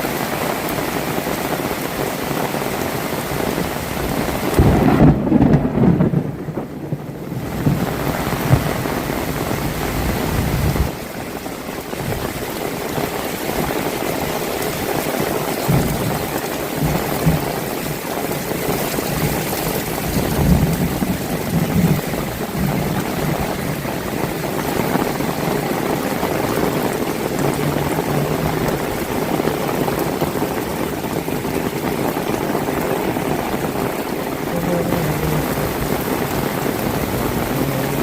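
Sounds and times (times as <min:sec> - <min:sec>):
heavy rain falling: 0:00.0 - 0:38.0
low rumbling: 0:26.4 - 0:38.0.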